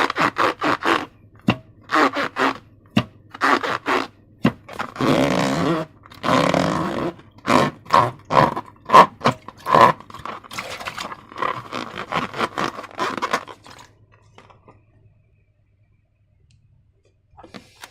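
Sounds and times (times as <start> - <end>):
slime squelching by hand: 7.4 - 14.0.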